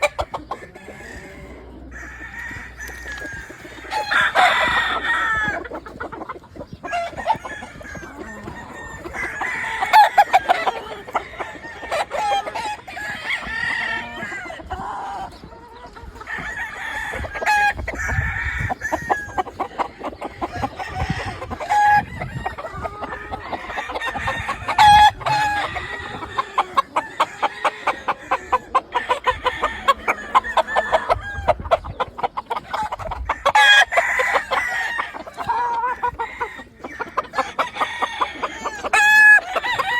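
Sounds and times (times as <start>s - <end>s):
chickens clucking: 0.0s - 39.9s
roosters crowing: 0.0s - 39.9s.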